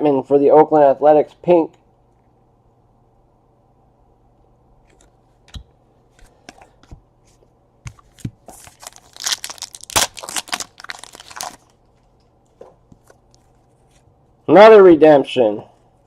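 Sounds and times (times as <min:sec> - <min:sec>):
wrapper tearing and crinkling: 0:08.5 - 0:11.8.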